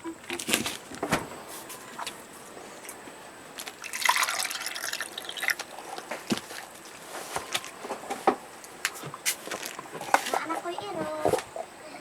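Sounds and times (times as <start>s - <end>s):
water being poured: 3.7s - 6.0s.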